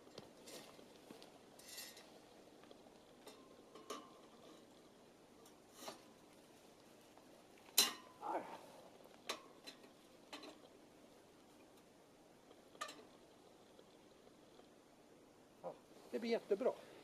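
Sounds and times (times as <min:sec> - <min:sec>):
metal camp gear clanking: 0:01.5 - 0:02.1, 0:07.7 - 0:08.2.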